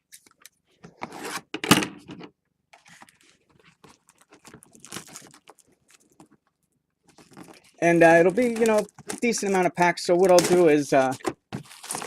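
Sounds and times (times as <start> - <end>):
rustling cardboard and foil packs: 2.8 - 12.0.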